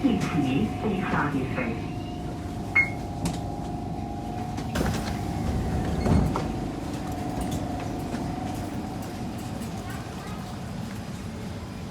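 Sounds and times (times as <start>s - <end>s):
train interior rumble: 0.0s - 11.9s.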